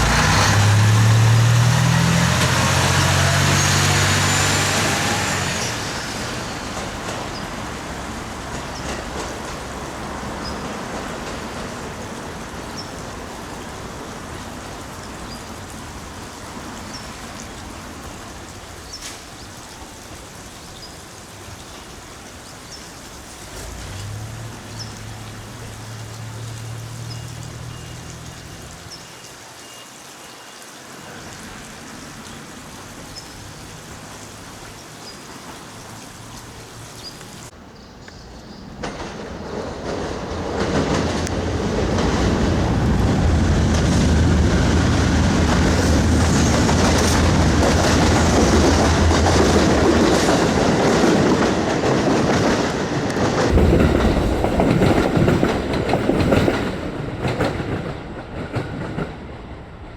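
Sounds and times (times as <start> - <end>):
vehicle engine hum passing: 0.0 - 10.6, 23.2 - 29.1
rain hissing: 0.0 - 37.6, 38.9 - 59.9
faint water drips: 6.5 - 38.2.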